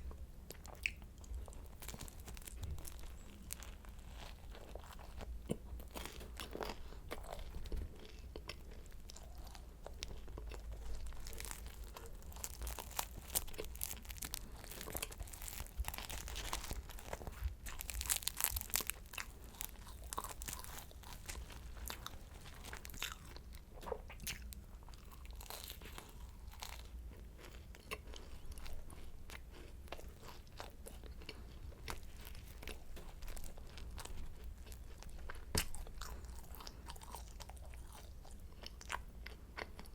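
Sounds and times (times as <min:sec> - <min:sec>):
crunching and chewing pastry: 0:00.0 - 0:39.9.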